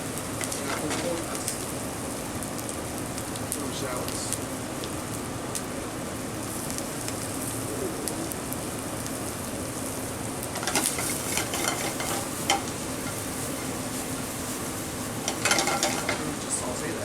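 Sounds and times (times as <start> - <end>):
shallots sizzling in a pan: 0.0 - 17.0
utensil clinking and scraping pan: 0.4 - 1.4, 10.6 - 16.6.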